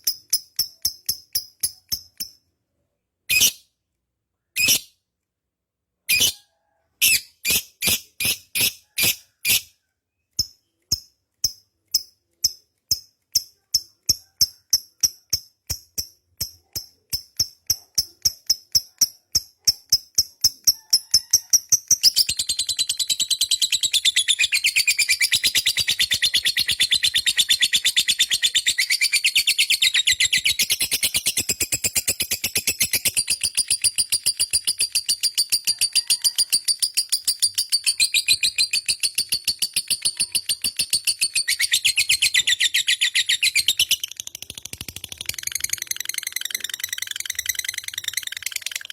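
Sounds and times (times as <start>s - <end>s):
lovebird chattering trill: 17.9s - 48.9s.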